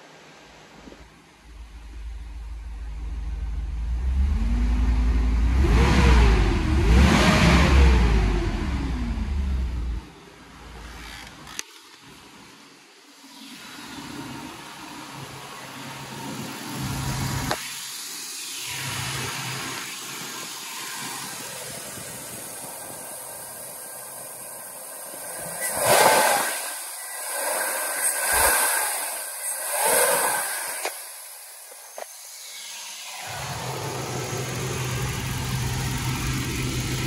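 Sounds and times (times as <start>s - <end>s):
engine rushing hiss: 0.0s - 37.0s
low engine hum: 0.4s - 11.6s, 33.1s - 37.0s.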